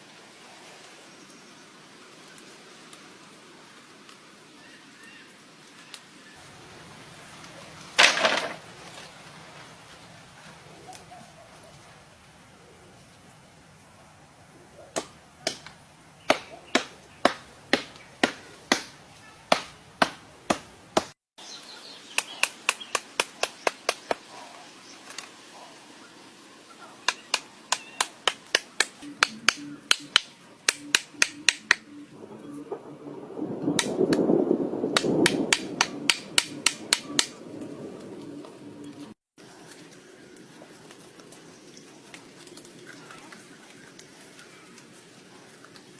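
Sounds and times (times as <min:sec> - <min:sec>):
dull rumbling noise: 0:31.8 - 0:39.2.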